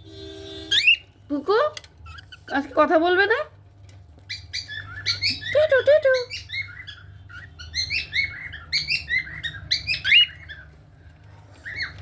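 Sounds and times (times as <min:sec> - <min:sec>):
cockatiels chirping: 0:00.6 - 0:01.1, 0:04.2 - 0:10.9, 0:11.5 - 0:12.0.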